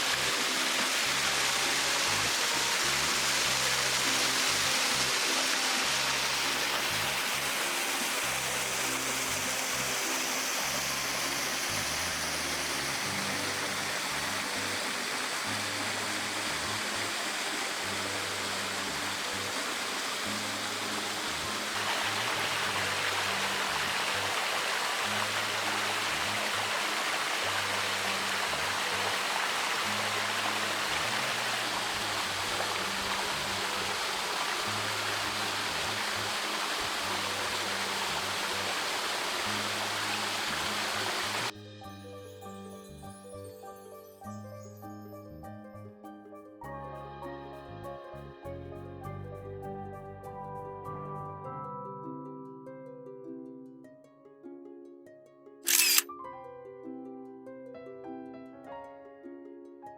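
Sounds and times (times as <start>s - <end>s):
waterfall rushing: 0.0s - 41.5s
soft slow background music: 0.0s - 59.9s.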